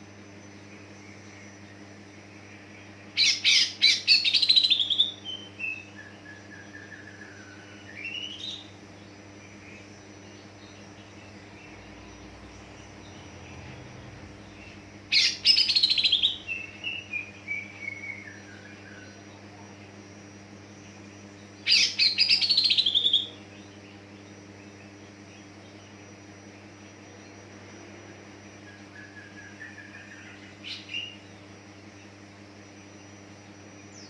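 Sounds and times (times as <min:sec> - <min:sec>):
faint steady hum: 0:00.0 - 0:34.0
bird singing chattering notes: 0:07.9 - 0:19.2.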